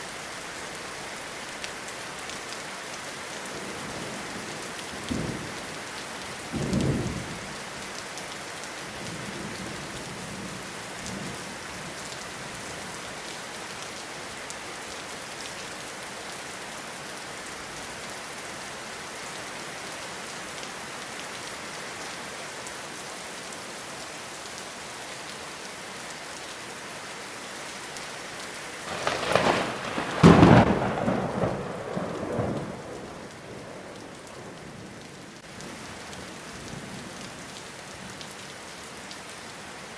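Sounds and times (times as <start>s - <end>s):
steady rain falling: 0.0s - 39.9s
thunder rumbling: 28.9s - 34.9s.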